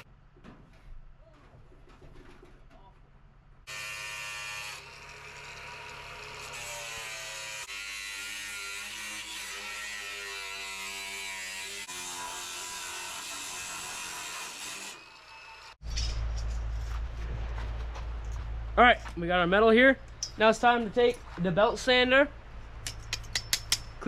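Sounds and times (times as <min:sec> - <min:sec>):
power tool cutting steel: 0:03.7 - 0:15.8.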